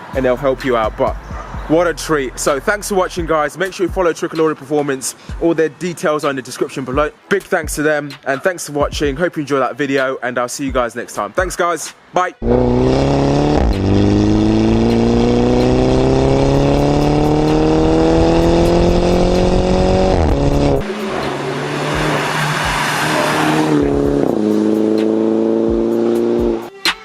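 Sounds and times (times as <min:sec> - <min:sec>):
car engine accelerating hard: 0:12.4 - 0:26.7.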